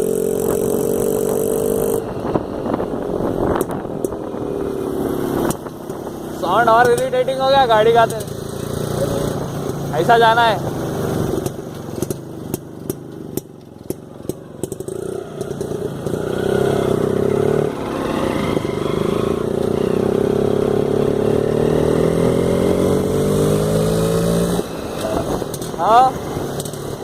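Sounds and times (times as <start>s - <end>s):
motorcycle engine revving: 0.0s - 27.0s
sharp knocks and rattles: 11.4s - 16.3s.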